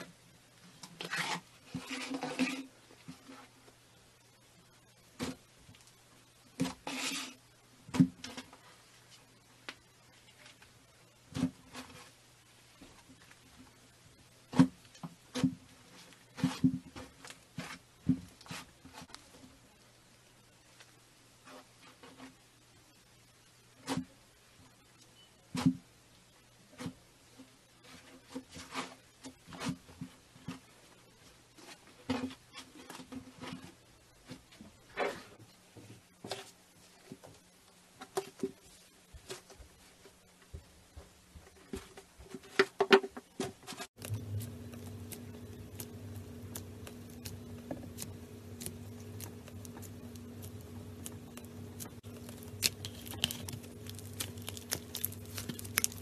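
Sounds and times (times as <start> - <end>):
slime squishing and popping: 44.0 - 56.0.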